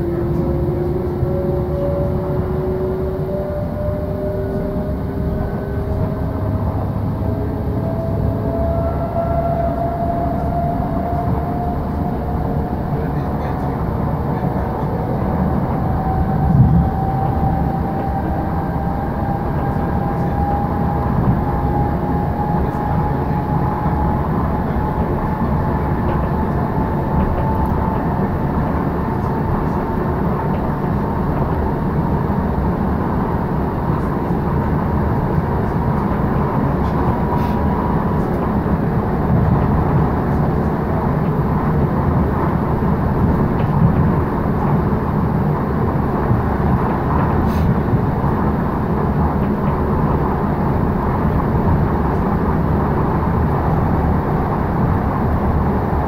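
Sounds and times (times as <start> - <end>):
train wheels rumbling on track: 0.0 - 56.0
train whine rising in pitch: 0.0 - 56.0.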